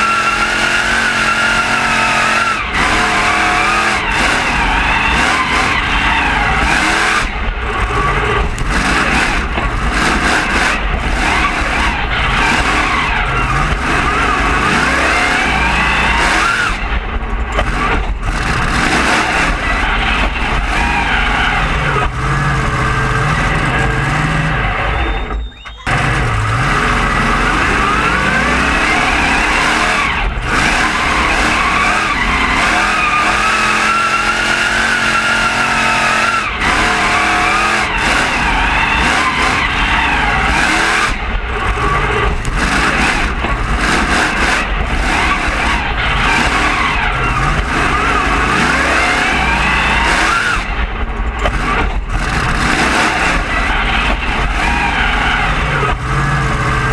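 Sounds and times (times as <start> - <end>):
monster truck engine revving: 0.0 - 56.9.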